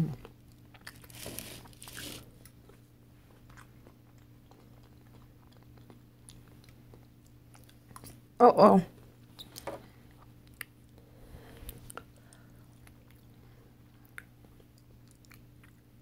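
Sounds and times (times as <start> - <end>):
person chewing with mouth clicks: 1.9 - 8.2, 9.5 - 11.0, 11.7 - 16.0.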